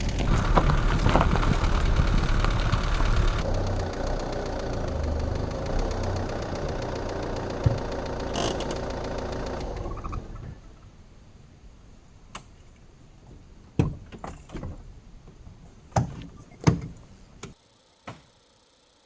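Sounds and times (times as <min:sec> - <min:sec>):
car engine idling with knocking: 0:00.0 - 0:10.4.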